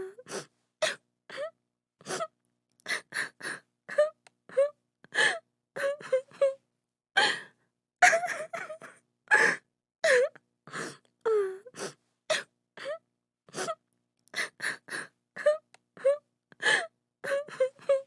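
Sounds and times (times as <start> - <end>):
woman crying: 8.0 - 8.9.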